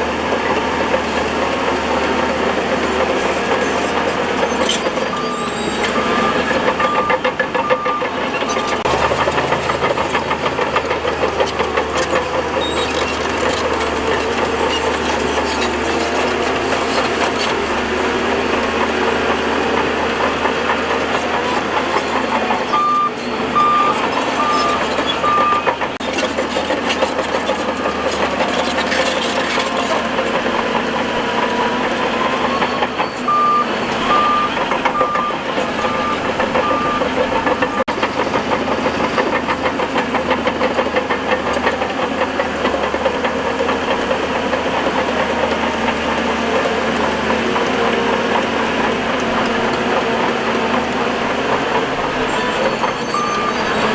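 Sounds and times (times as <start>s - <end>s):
heavy machinery engine running: 0.0s - 53.9s
reversing alarm beeps: 3.5s - 8.9s, 22.6s - 25.8s, 31.9s - 37.9s, 52.3s - 53.9s.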